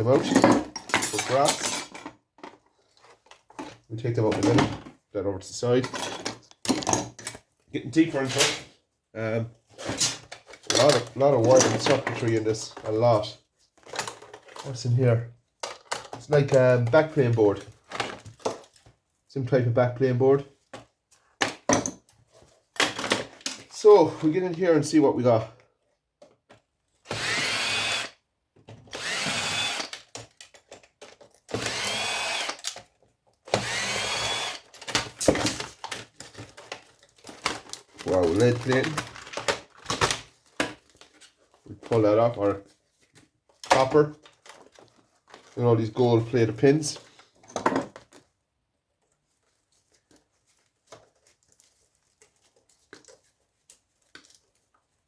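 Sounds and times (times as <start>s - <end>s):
parts clicking and knocking: 15.5s - 18.9s
cordless drill whining: 27.1s - 28.2s, 28.9s - 30.1s, 31.5s - 32.8s, 33.5s - 34.7s.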